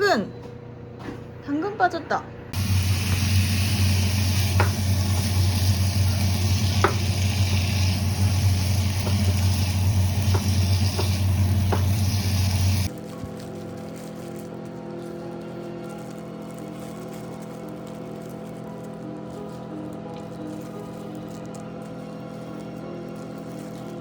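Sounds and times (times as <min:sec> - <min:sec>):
food sizzling in a frying pan: 0:02.6 - 0:12.9.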